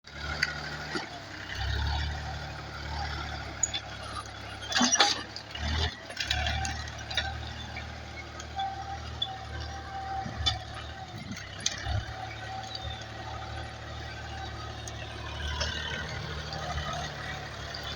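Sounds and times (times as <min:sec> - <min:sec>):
tractor engine droning: 0:00.1 - 0:17.9.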